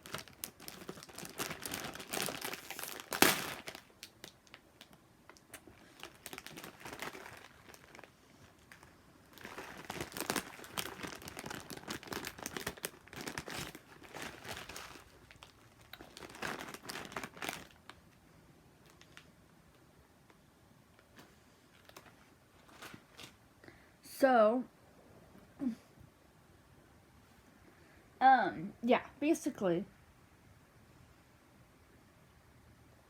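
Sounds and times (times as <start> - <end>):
plastic wrapper crinkling: 0.0 - 18.2, 18.8 - 19.8, 21.0 - 23.4
noodle block crushed: 1.2 - 3.8.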